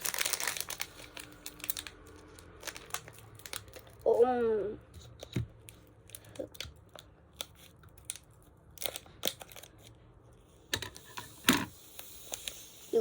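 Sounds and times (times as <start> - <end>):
plastic packet crinkling: 0.0 - 4.0.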